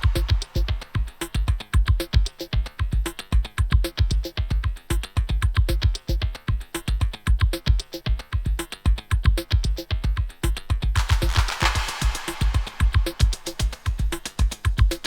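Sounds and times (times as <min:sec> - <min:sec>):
deep kick drum: 0:00.0 - 0:02.2, 0:08.4 - 0:15.0
electronic music with drum-machine beat: 0:00.0 - 0:15.0
cymbal-like wash: 0:11.0 - 0:14.1.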